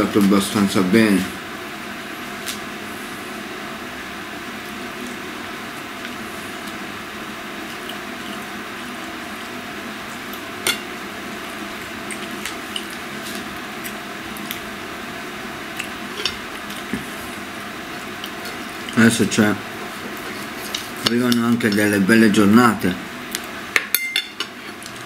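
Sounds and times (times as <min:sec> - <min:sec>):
wet chewing: 0:07.6 - 0:09.5, 0:11.5 - 0:14.7.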